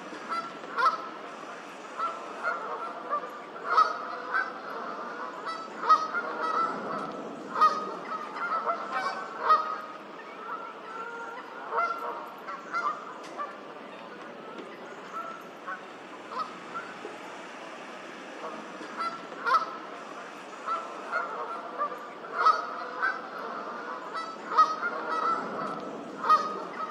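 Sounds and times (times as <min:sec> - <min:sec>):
geese honking: 0:00.0 - 0:26.9.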